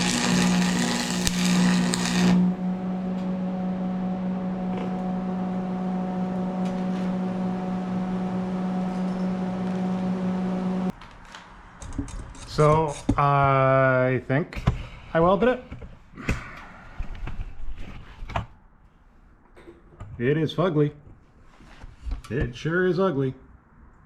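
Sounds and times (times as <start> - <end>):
arc welder crackling: 0.0 - 2.6
low electrical hum: 0.0 - 11.0.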